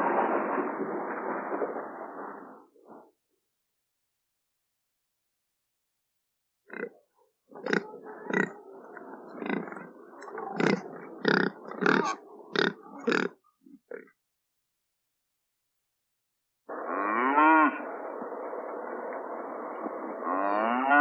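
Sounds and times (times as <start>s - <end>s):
pig grunting and squealing: 6.7s - 8.7s, 9.3s - 14.2s.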